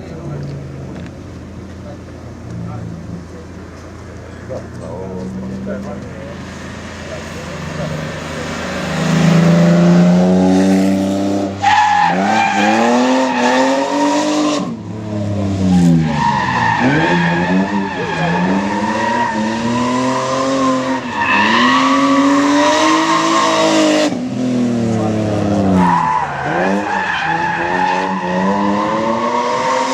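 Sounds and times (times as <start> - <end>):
car engine revving: 0.0 - 29.9.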